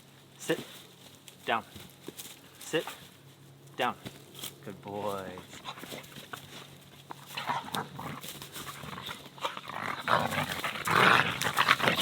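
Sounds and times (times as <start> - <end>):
dogs barking in rough bursts: 5.4 - 12.0.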